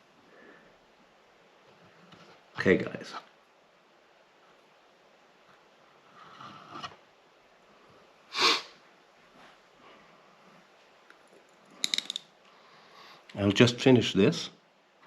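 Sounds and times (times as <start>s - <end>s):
short sharp sniff: 8.3s - 8.8s.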